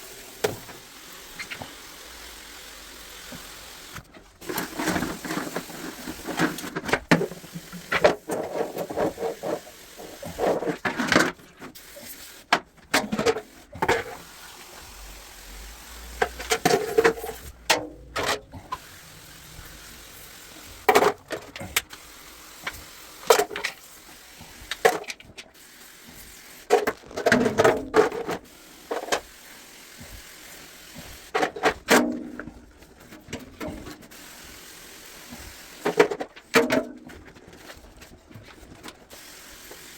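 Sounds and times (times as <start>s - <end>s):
tools and parts clattering: 16.1s - 18.9s.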